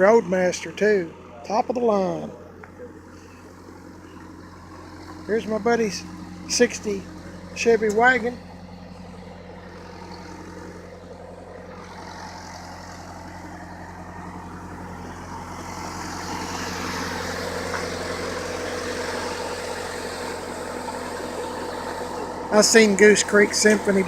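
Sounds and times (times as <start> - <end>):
engine droning: 0.0 - 24.0.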